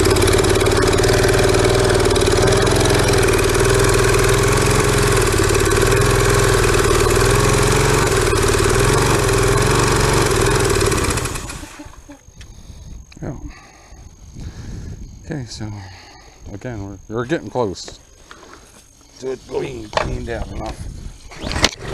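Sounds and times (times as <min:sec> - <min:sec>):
small engine running: 0:00.0 - 0:12.2, 0:21.2 - 0:21.9.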